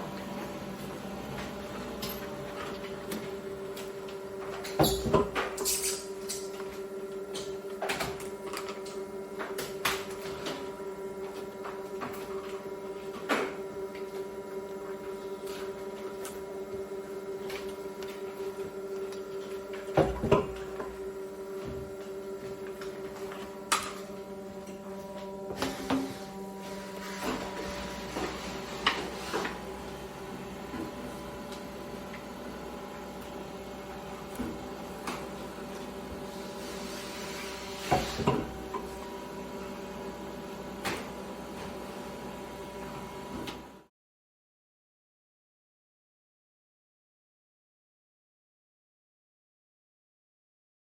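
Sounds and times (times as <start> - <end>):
electric machine hum: 0.0 - 43.9.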